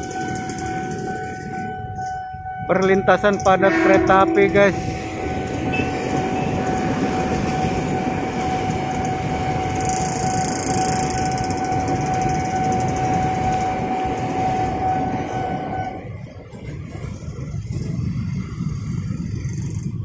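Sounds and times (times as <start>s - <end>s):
steady high tone: 0.0s - 16.2s
train wheels rumbling on rails: 0.0s - 20.0s.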